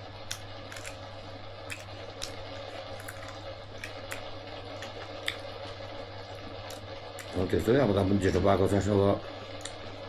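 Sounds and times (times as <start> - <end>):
eating noises: 0.2 - 7.7, 9.5 - 10.0.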